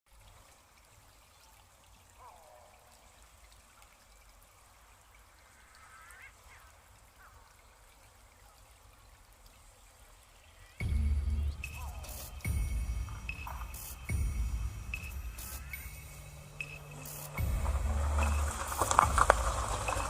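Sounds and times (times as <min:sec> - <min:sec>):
faint bird chirps: 0:05.1 - 0:17.4.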